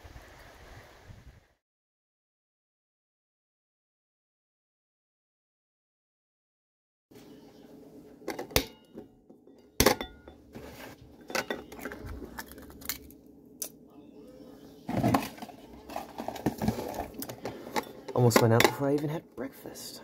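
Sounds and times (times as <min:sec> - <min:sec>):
soft handling noise: 0:10.2 - 0:13.2, 0:14.7 - 0:19.1.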